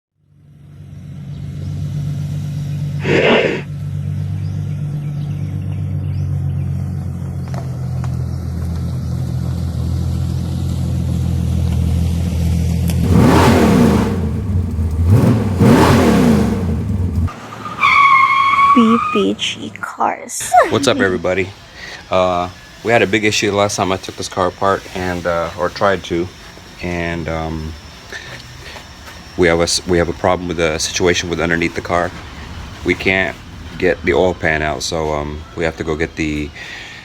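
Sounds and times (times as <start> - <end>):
car engine running: 0.2 - 17.9, 18.8 - 37.0
car engine revving hard: 12.3 - 19.2, 20.6 - 34.9.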